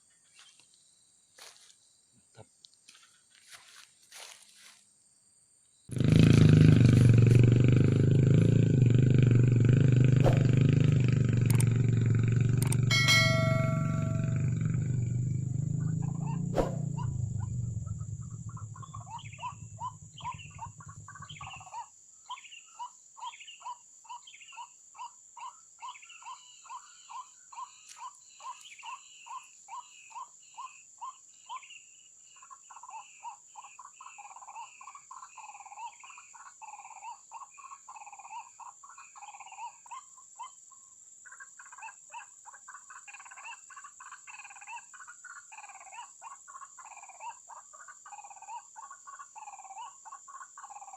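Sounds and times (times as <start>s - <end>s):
low rumble: 6.9s - 21.6s.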